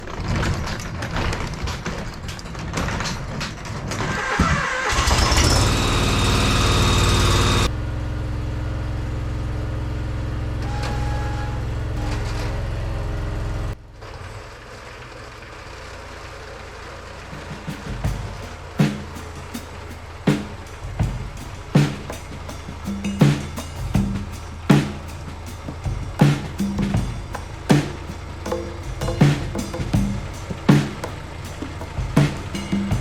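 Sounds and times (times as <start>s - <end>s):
garden tractor engine running: 4.8s - 7.7s, 14.0s - 33.0s.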